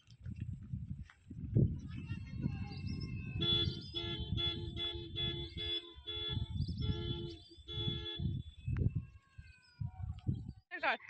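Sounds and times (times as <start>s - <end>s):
car horn tooting: 3.4s - 8.6s.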